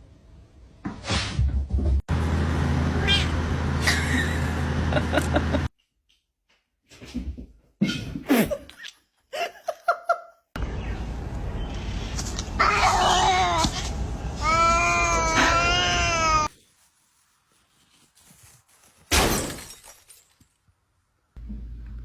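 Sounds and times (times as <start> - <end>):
cat yowling: 3.0 - 3.3, 14.4 - 16.5.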